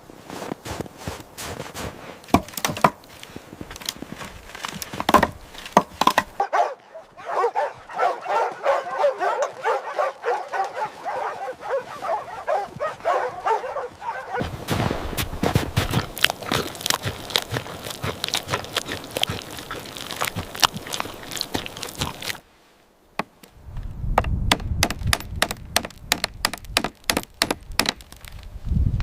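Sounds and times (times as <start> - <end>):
dogs yipping and whining: 6.4 - 14.4.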